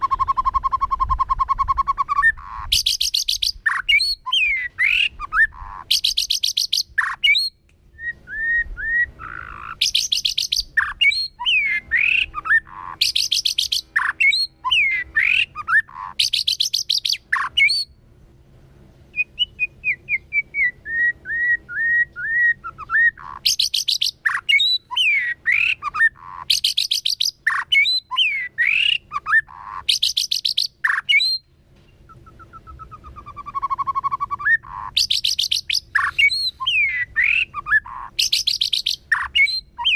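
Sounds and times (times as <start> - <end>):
harsh rattling bird calls: 0.0 - 7.6, 8.9 - 18.0, 19.1 - 39.9
bird singing varied song: 0.0 - 18.0, 19.0 - 39.9.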